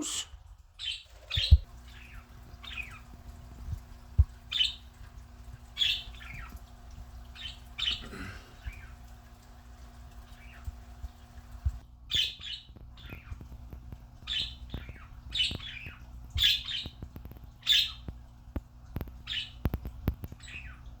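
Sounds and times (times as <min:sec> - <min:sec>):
birds squawking: 0:05.6 - 0:09.1, 0:14.2 - 0:17.0, 0:17.6 - 0:18.1.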